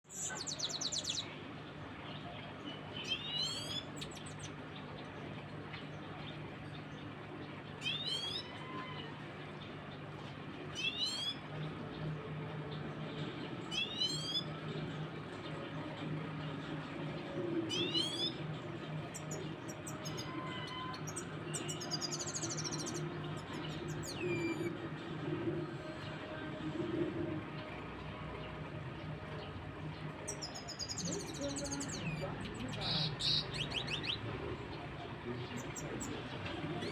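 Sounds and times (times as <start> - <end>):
finch singing: 0.1 - 26.4, 27.5 - 36.9
rapid twittering bird trill: 2.0 - 5.0, 7.8 - 9.0, 10.7 - 11.5, 13.7 - 14.6, 17.7 - 24.9, 30.2 - 36.9.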